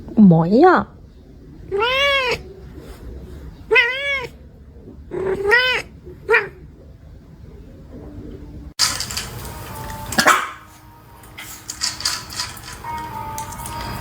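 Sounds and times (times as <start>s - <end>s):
cat meowing: 1.7s - 2.6s, 3.7s - 4.4s, 5.1s - 6.6s.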